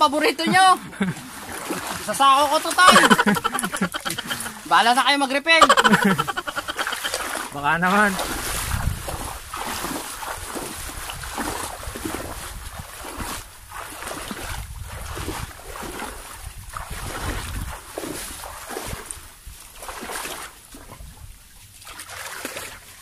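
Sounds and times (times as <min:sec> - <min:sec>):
water and mud sloshing: 0:00.0 - 0:23.0.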